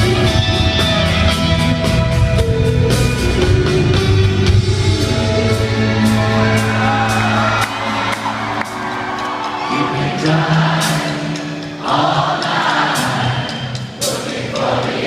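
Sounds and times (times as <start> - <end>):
sustained guitar tones: 0.0 - 10.2
live rock band: 0.0 - 15.0
crowd singing along: 3.6 - 15.0
crowd whooping and cheering: 5.6 - 10.4.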